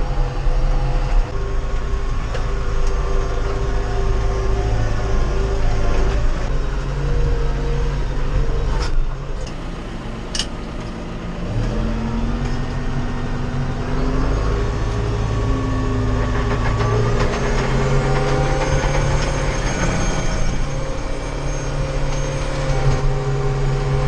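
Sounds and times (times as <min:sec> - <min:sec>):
tractor engine running under load: 0:00.0 - 0:24.0.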